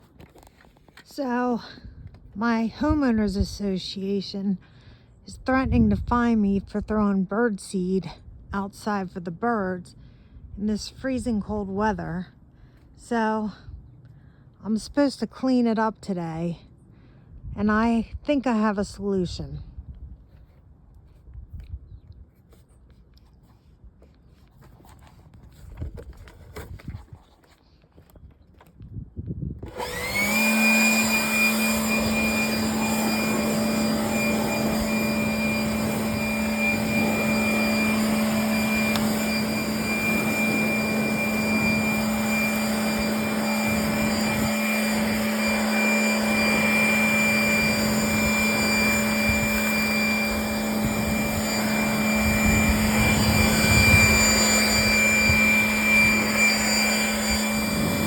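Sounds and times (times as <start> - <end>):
electric blower motor running: 29.6 - 58.0.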